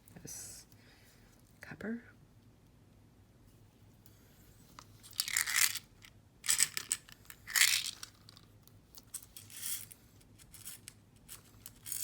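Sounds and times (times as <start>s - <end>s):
beads clinking and rattling: 5.0s - 12.0s.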